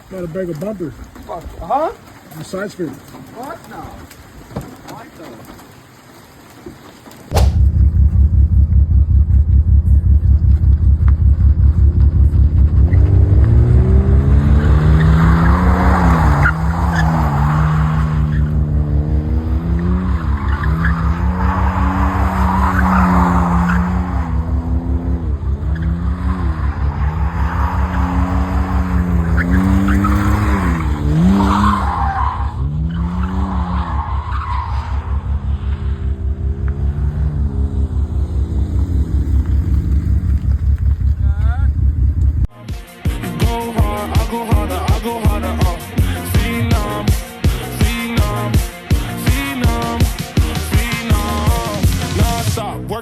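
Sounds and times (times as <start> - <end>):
car engine revving under load: 7.3 - 42.5.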